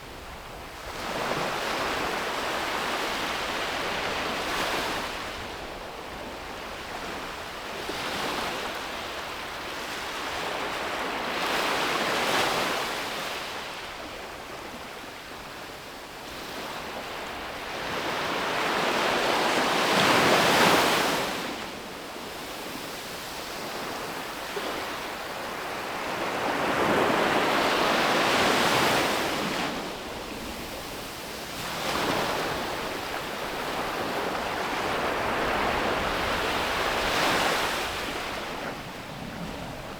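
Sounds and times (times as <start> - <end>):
sea waves breaking on beach: 23.6 - 39.9.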